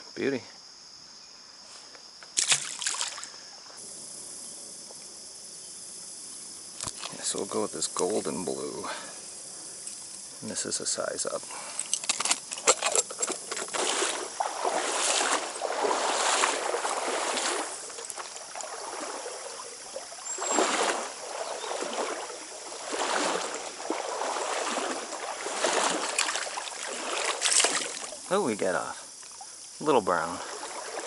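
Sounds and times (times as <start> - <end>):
stream water flowing: 6.5 - 31.0.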